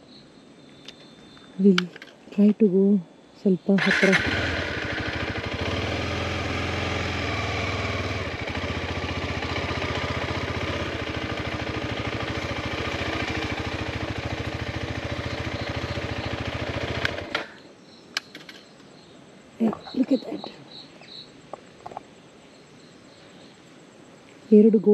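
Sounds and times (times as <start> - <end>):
motorcycle engine running: 3.8 - 17.5
small clicks: 17.0 - 18.7.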